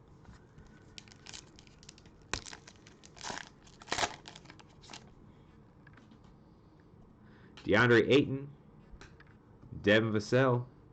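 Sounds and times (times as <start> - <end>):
cellophane wrapper crinkling and tearing: 0.9 - 5.1.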